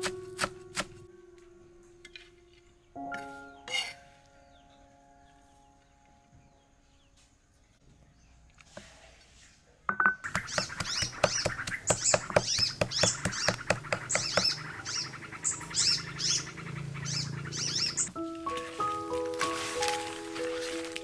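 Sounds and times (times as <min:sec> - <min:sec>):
birds chirping: 0:02.0 - 0:08.6, 0:10.1 - 0:19.2.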